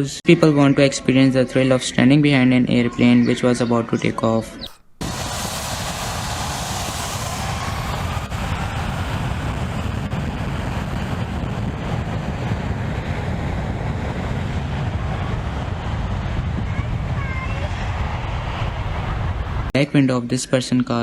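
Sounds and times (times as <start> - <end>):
airplane engine blast: 4.6 - 19.7
wind buffeting microphone: 4.6 - 19.7.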